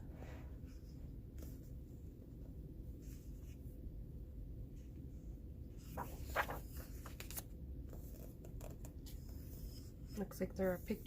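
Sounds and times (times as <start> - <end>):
faint low background hum: 0.0 - 11.0
paper page turning: 5.8 - 9.3.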